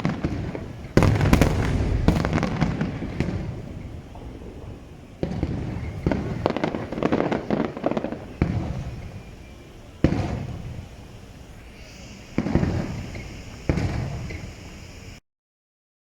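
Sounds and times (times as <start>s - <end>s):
firework shells booming: 0.0s - 11.2s, 12.3s - 14.7s.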